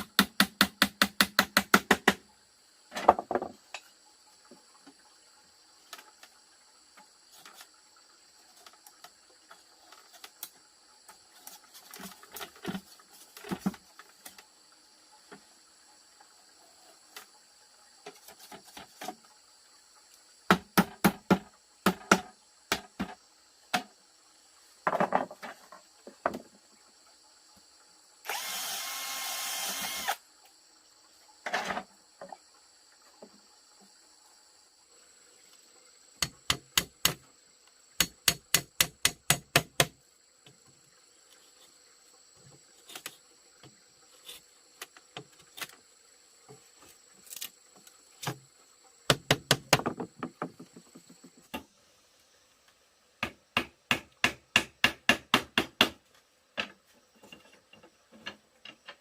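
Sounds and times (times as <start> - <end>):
knocks and taps on wood: 20.5 - 23.9, 49.1 - 51.7
small power tool running: 28.3 - 30.2.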